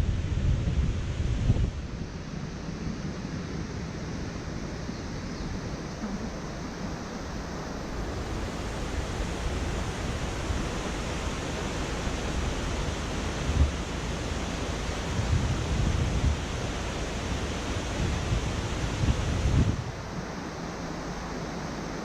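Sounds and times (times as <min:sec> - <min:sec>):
road and wind noise: 0:00.0 - 0:22.0.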